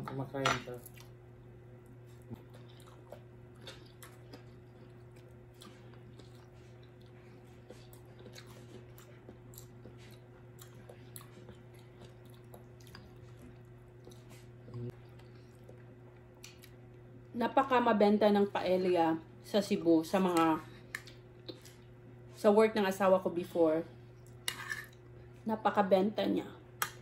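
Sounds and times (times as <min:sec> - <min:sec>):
steady low hum: 0:00.0 - 0:27.0
people chewing: 0:01.8 - 0:17.0.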